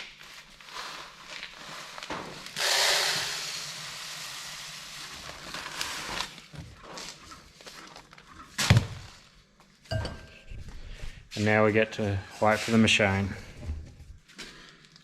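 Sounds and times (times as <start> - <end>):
grain pouring and rustling: 0.0 - 8.2.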